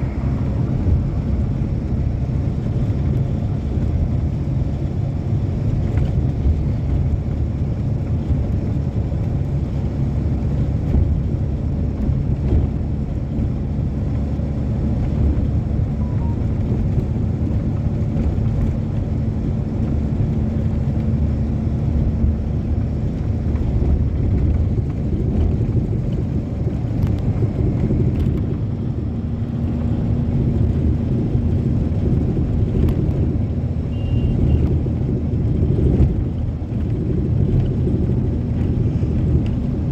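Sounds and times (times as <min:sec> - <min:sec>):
train wheels rumbling: 0:00.0 - 0:39.9.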